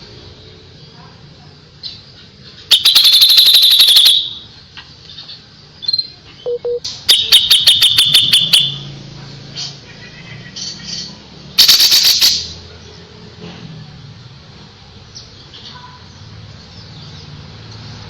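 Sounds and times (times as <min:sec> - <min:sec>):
songbird shrill repeated notes: 0:02.7 - 0:04.5, 0:05.8 - 0:08.9, 0:09.9 - 0:12.6
bird short chips: 0:10.6 - 0:12.6.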